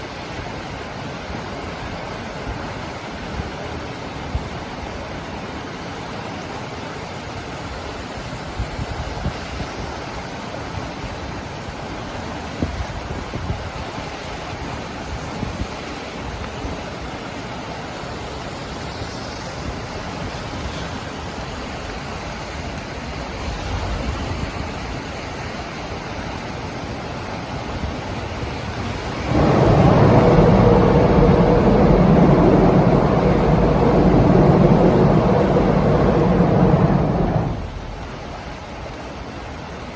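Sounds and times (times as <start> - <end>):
train rumbling over bridge: 23.1 - 25.2, 27.8 - 39.8
wind noise on microphone: 27.8 - 39.2
train humming tone: 28.8 - 39.0.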